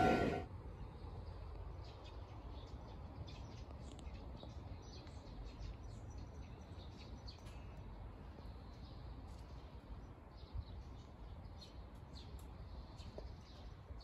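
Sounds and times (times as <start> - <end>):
steady low rumble: 0.0 - 0.4.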